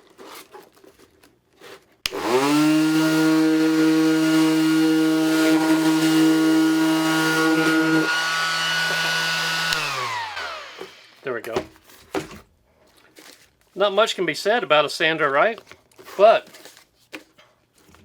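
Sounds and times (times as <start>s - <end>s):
orbital sander running: 2.1s - 11.2s.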